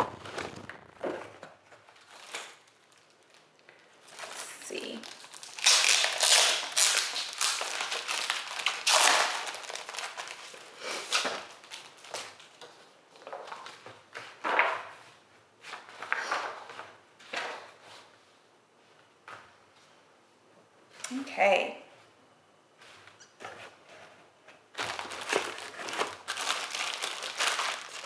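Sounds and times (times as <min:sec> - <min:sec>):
packaging rustling and crinkling: 0:00.0 - 0:14.4, 0:24.7 - 0:28.0.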